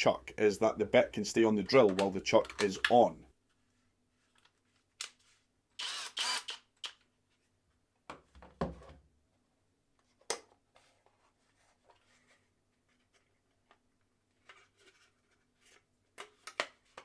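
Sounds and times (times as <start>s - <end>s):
drill chuck handling clicks: 1.9s - 3.0s.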